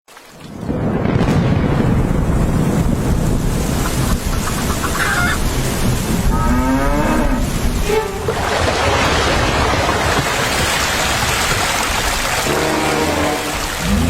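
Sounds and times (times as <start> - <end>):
cow mooing: 6.3 - 8.3.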